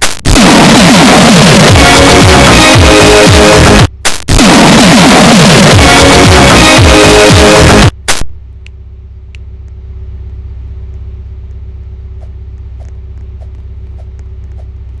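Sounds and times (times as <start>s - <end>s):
car engine rumbling: 7.9s - 15.0s
faint steady hum: 7.9s - 15.0s.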